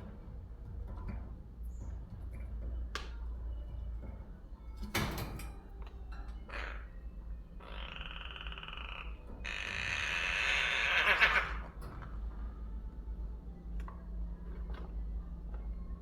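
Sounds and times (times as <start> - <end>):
crow harsh rasping calls: 6.5 - 6.9, 7.6 - 11.8.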